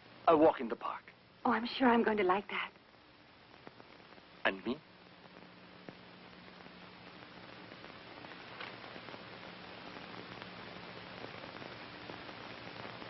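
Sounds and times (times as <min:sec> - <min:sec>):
steady film hiss: 0:00.0 - 0:13.0.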